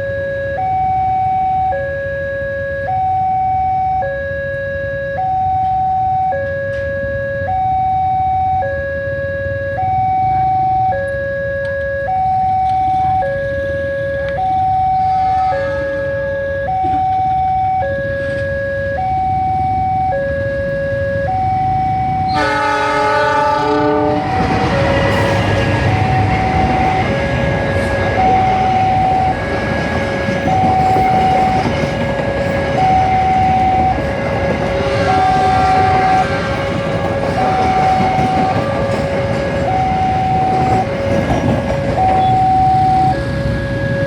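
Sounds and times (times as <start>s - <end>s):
two-tone level crossing alarm: 0.0s - 44.0s
train horn: 15.0s - 17.2s, 22.3s - 44.0s
train wheels rumbling: 20.6s - 44.0s.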